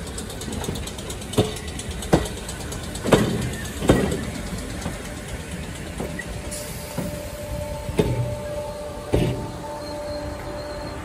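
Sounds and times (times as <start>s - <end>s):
train rumbling: 0.0s - 11.0s
heavy clunks: 5.9s - 9.9s.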